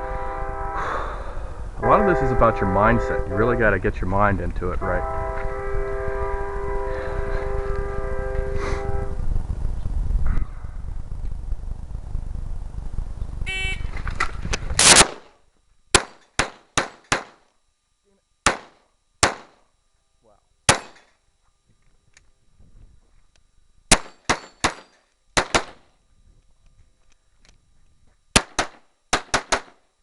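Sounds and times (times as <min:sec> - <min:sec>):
pistol shots: 0:14.8 - 0:15.3, 0:15.9 - 0:17.4, 0:18.4 - 0:19.6, 0:20.7 - 0:21.0, 0:23.9 - 0:25.8, 0:28.4 - 0:29.8.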